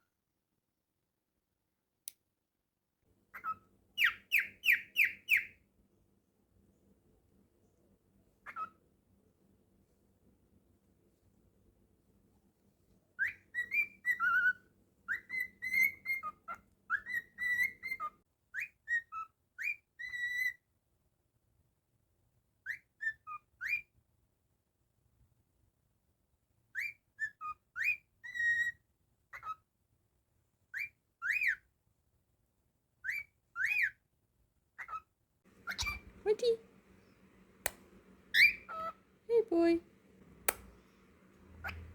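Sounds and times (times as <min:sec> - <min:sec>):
cockatiel whistling: 0:03.4 - 0:05.5, 0:13.2 - 0:20.6, 0:35.6 - 0:36.2, 0:38.3 - 0:39.0, 0:41.6 - 0:41.9.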